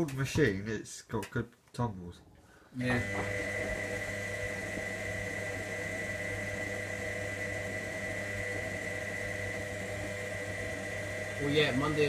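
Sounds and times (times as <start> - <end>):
washing machine motor humming: 2.8 - 12.0.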